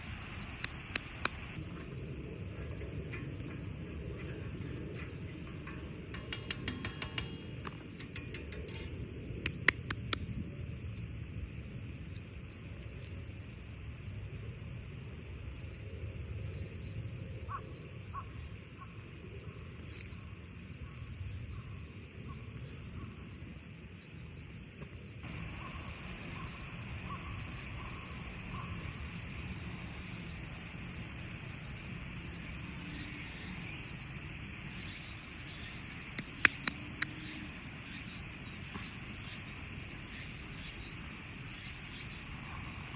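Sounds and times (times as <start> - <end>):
crickets trilling: 0.0 - 42.9
sharp clicks: 0.6 - 1.6, 5.6 - 10.3, 36.1 - 37.2.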